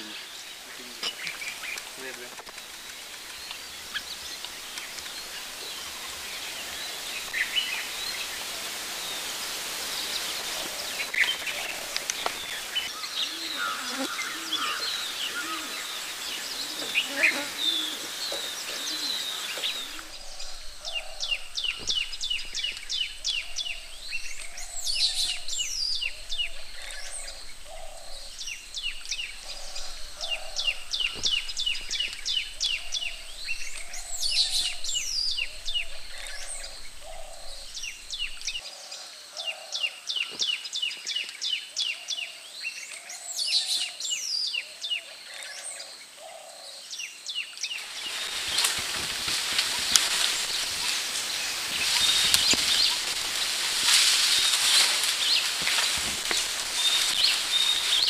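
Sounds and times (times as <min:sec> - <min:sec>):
bird chirping: 0:09.9 - 0:58.0.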